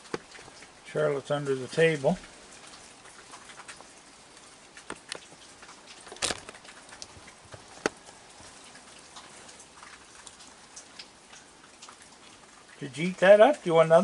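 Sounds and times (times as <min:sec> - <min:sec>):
rain falling: 0:00.0 - 0:14.0
drops ticking on surfaces: 0:02.2 - 0:12.8.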